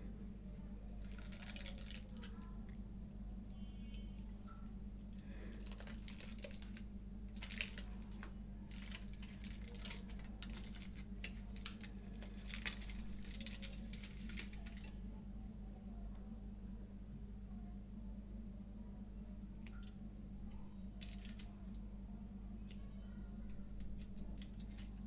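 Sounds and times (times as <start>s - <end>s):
low electrical hum: 0.0s - 25.0s
wrapper crinkling: 0.9s - 2.8s, 5.1s - 15.0s, 21.0s - 21.8s, 23.5s - 25.0s.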